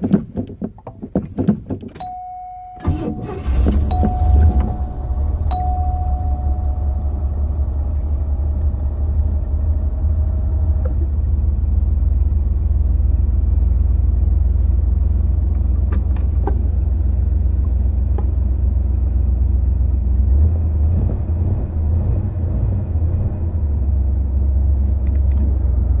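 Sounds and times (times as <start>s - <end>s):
brief high tone: 2.0s - 7.9s
car engine idling: 2.8s - 26.0s.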